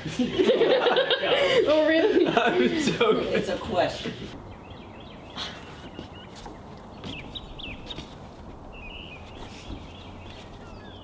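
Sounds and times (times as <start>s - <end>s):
outdoor background hiss: 0.0s - 11.0s
small birds chirping: 4.3s - 11.0s.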